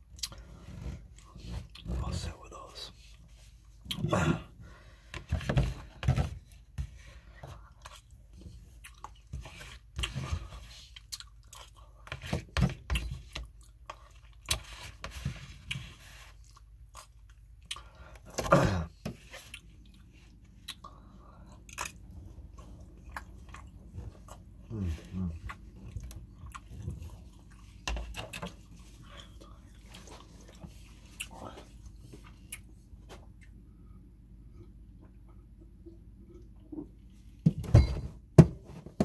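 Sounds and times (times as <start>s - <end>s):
chewing and mouth smacks: 7.8s - 9.3s, 10.9s - 12.1s, 19.4s - 24.5s, 25.4s - 33.6s.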